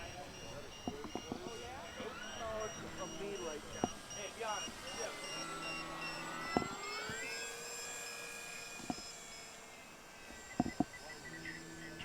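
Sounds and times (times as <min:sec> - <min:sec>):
high beeping: 0:00.0 - 0:07.5
model plane motor whining: 0:00.0 - 0:12.0.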